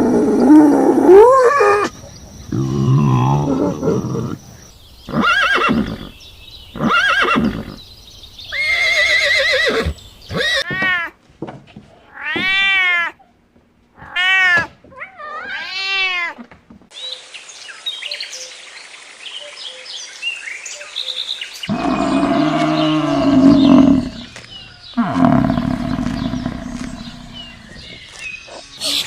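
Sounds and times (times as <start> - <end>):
cat meowing: 14.0 - 16.4.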